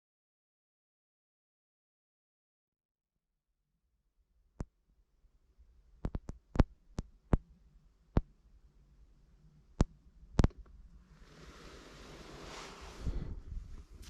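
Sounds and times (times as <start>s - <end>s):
faint low hum: 4.2s - 14.0s
sharp knocks and clicks: 6.0s - 7.5s
hiss: 11.1s - 13.6s.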